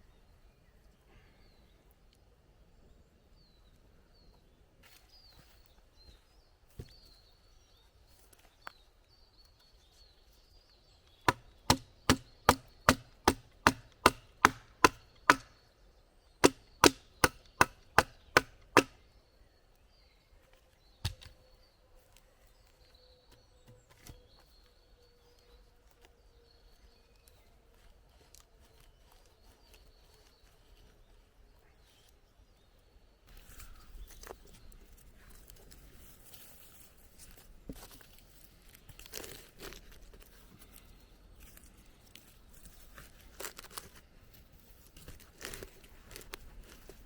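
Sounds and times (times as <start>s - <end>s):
axe chopping wood: 11.2s - 15.5s, 16.4s - 19.0s.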